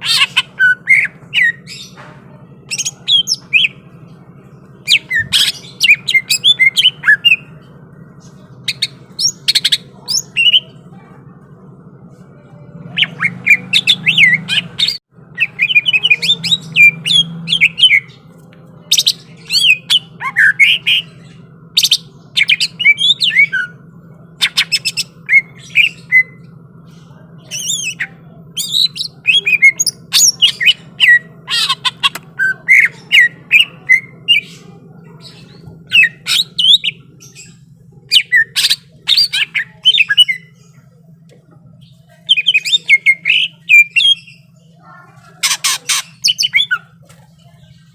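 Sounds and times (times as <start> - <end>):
faint low hum: 0.0 - 47.9
bird harsh chattering calls: 24.4 - 40.9, 41.8 - 47.9.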